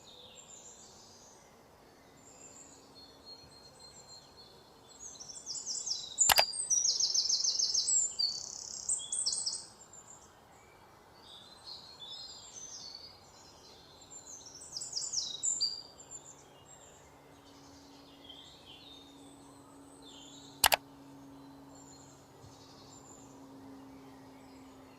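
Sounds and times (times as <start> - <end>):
sharp clicks: 6.2 - 6.5, 20.6 - 20.8
faint low hum: 15.8 - 24.9.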